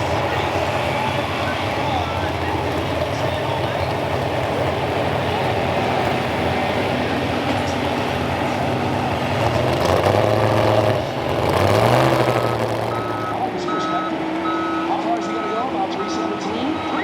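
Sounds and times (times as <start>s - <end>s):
heavy vehicle engines revving: 0.0s - 17.0s
reversing beeper: 5.2s - 17.0s.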